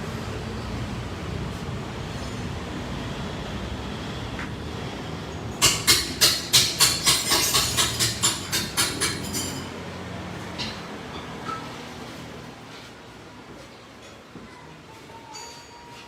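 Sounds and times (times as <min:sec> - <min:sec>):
workshop background noise: 0:00.0 - 0:16.0
hammer striking steel: 0:05.6 - 0:09.7.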